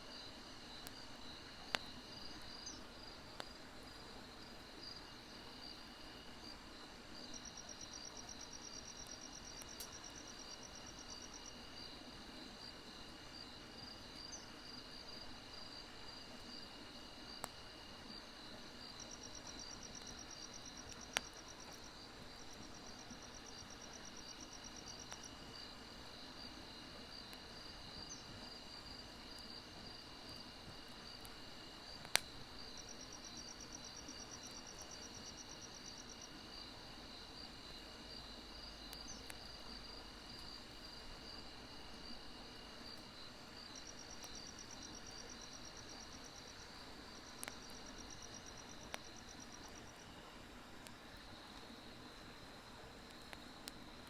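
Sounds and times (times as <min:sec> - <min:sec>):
crickets chirping: 0:00.1 - 0:54.0
wood fire popping: 0:27.2 - 0:36.0, 0:50.8 - 0:54.0.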